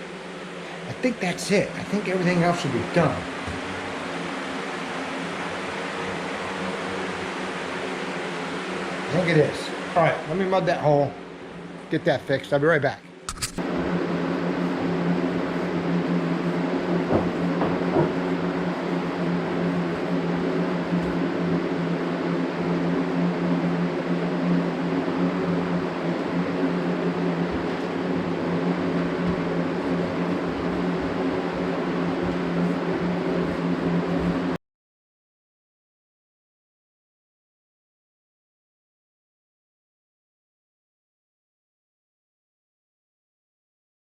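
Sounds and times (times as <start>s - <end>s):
machine hum: 0.0s - 12.2s, 13.0s - 34.6s.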